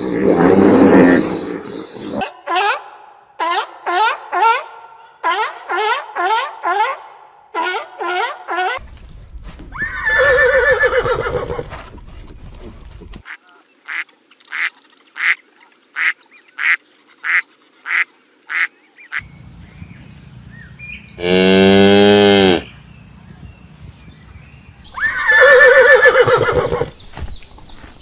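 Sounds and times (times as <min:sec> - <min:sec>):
duck quacking: 0:16.0 - 0:19.2
cow mooing: 0:21.2 - 0:22.7
loud animal call: 0:21.2 - 0:22.7, 0:25.0 - 0:26.9.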